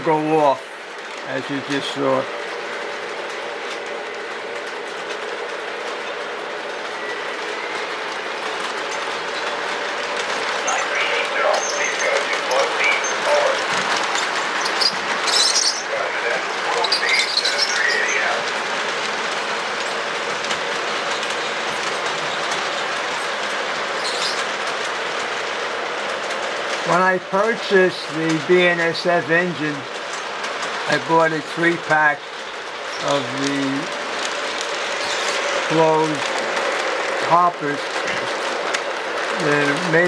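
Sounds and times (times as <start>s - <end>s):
model train rolling on track: 0.0s - 40.0s.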